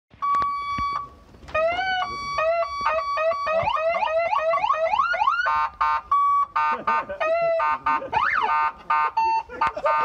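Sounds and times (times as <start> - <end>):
police siren changing tones: 0.2 - 10.0.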